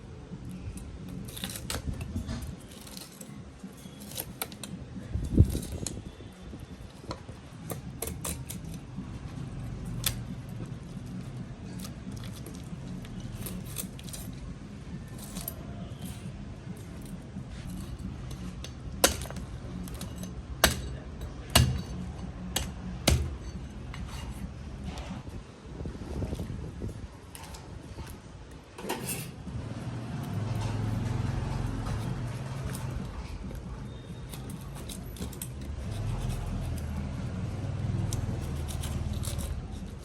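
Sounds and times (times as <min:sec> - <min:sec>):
kitchen utensils clinking: 0:28.8 - 0:29.4.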